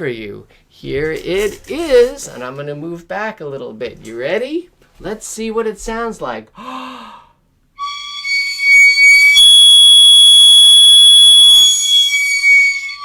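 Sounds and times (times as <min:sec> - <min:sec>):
high whistle-like tone: 0:08.5 - 0:13.0.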